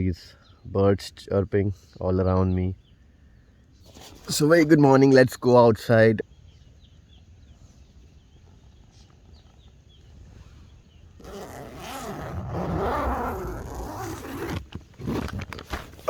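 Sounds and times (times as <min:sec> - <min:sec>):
faint bird chirps: 0:00.0 - 0:14.5
tent zipper pulled open: 0:11.2 - 0:16.0.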